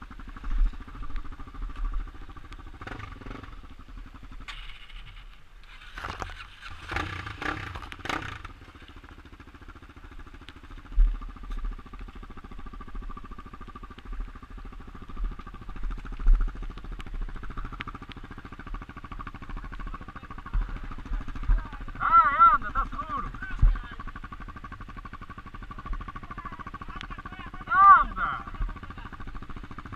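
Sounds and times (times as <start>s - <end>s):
motorcycle engine running: 0.0s - 29.9s
low thumps: 22.6s - 24.8s.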